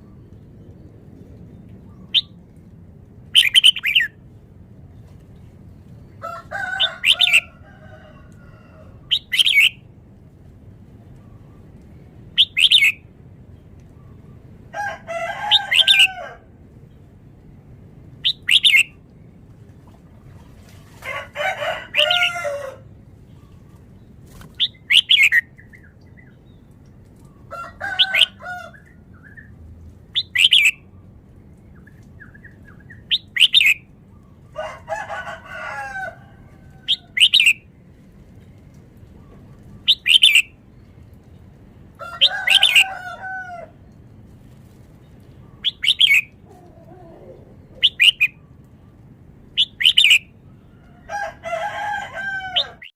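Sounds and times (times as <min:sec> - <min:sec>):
bird singing: 0:03.4 - 0:04.2, 0:09.1 - 0:09.8, 0:12.4 - 0:13.0, 0:18.3 - 0:19.0, 0:24.6 - 0:26.7, 0:30.2 - 0:30.9, 0:31.7 - 0:34.4, 0:36.9 - 0:37.6, 0:39.3 - 0:40.6, 0:45.4 - 0:46.4, 0:47.3 - 0:48.9, 0:49.6 - 0:50.3.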